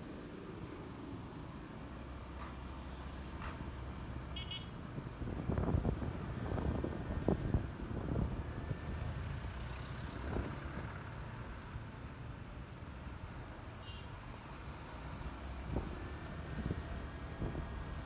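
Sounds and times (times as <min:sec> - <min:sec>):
road and traffic noise: 0:00.0 - 0:18.0.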